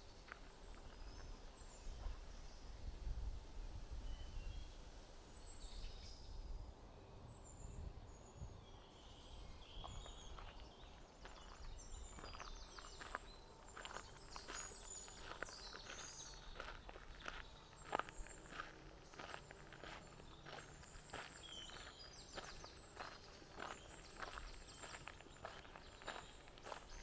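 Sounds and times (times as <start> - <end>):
footsteps on forest trail: 0.2 - 2.4, 9.8 - 27.0
small birds chirping: 7.6 - 27.0.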